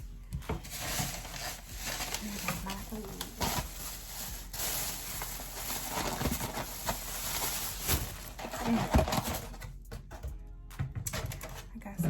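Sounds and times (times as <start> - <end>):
food packaging rustling: 0.5 - 9.8.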